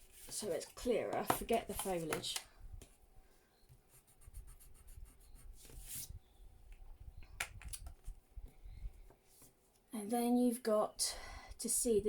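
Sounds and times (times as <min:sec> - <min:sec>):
pencil scratching on paper: 0:03.9 - 0:05.6.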